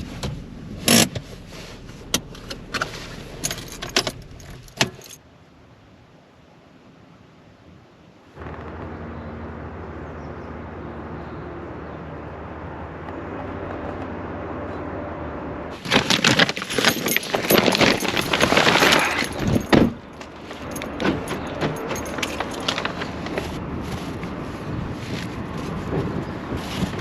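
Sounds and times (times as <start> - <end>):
clattering jangling and scraping: 0.9 - 5.2, 15.7 - 24.2.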